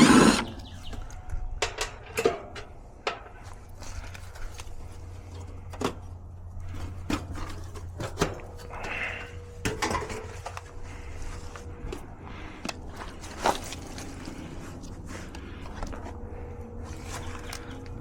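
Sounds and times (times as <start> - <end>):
steady low hum: 0.0 - 18.0
tools and metal parts clattering: 1.1 - 11.1.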